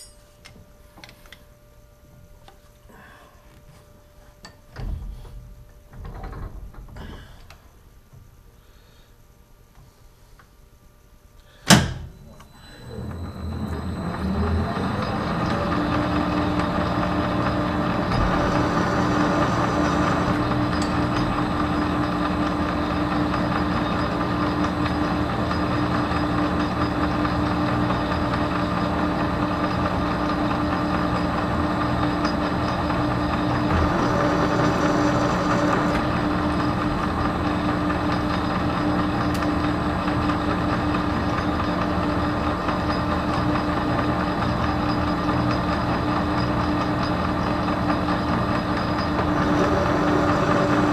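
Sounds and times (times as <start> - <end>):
metal lathe humming and whining: 12.8 - 50.9.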